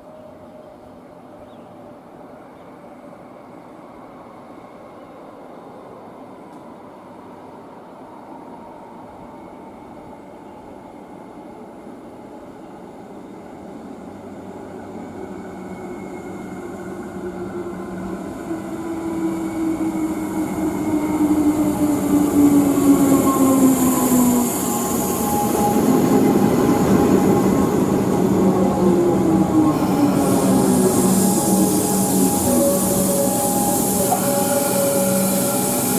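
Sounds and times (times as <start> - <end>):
train wheel and rail noise: 0.0 - 35.9
electric train motors whining: 19.2 - 35.9.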